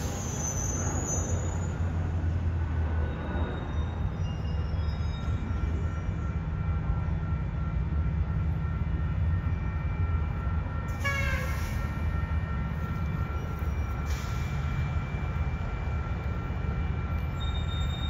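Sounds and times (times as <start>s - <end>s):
train rumbling on rails: 0.0s - 18.0s.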